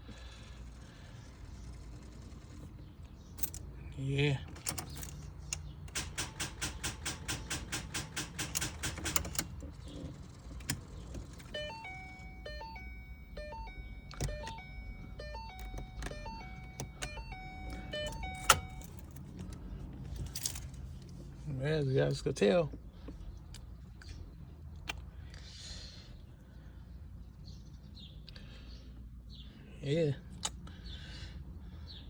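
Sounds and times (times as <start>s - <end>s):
starter solenoid clicking rapidly: 4.6s - 12.7s
stepped electronic tones: 11.5s - 18.9s.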